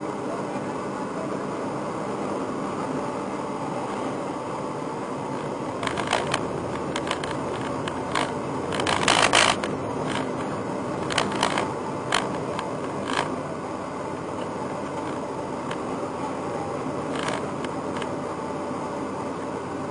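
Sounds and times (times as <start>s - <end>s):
car engine running: 0.0s - 19.9s
sharp rattling clicks: 5.4s - 13.4s, 17.1s - 18.1s.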